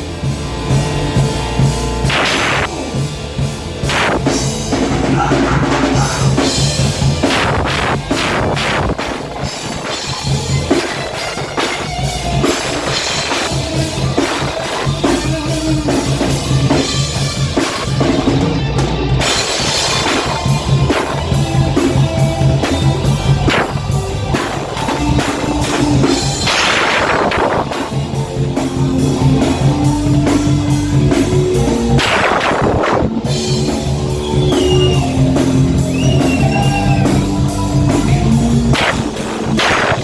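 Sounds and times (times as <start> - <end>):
bass drum: 0.0 - 40.0
heavy metal band playing: 0.0 - 40.0
snare drum: 2.1 - 2.8, 3.9 - 6.6, 24.4 - 27.9, 32.0 - 33.2, 38.8 - 40.0.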